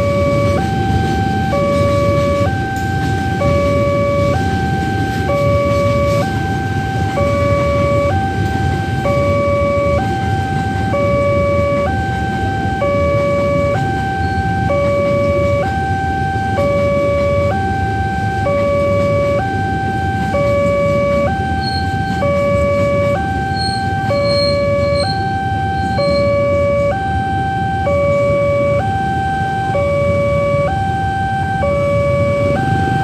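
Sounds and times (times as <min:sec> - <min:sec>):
two-tone crossing alarm: 0:00.0 - 0:33.0.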